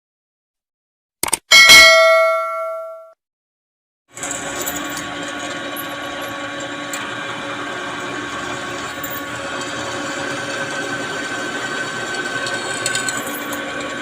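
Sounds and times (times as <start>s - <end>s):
small electric power tool running: 4.1s - 14.0s.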